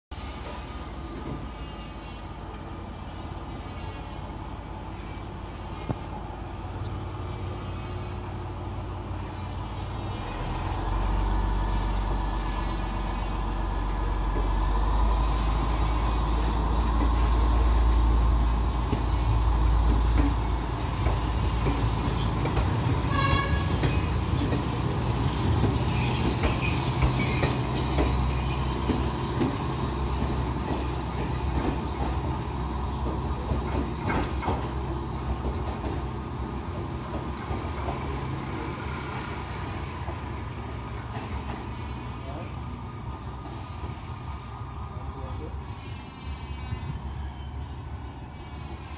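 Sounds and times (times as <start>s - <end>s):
high wheel squeal: 20.2s - 48.9s.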